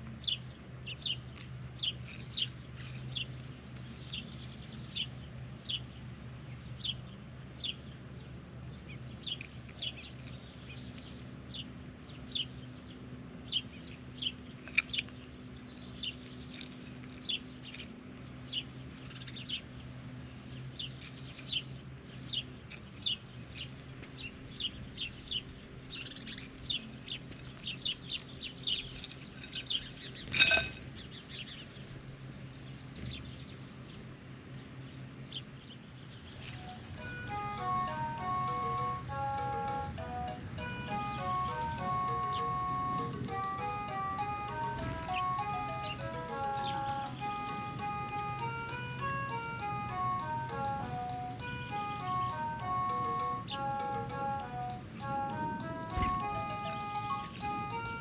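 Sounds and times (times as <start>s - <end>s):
bird chirping: 35.3s - 58.0s.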